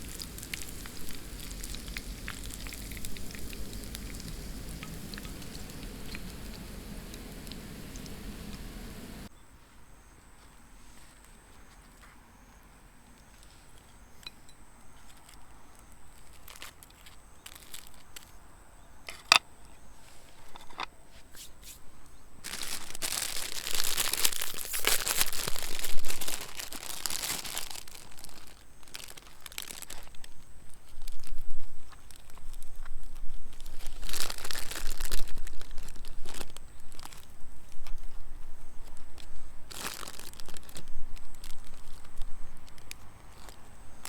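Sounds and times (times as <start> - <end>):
crinkling and rustling: 0.0 - 9.3, 22.4 - 44.0.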